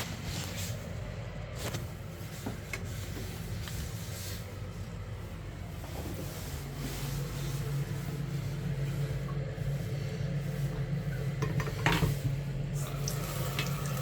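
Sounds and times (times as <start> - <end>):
steady low hum: 0.0 - 14.0
parts knocking and clattering: 11.4 - 12.2.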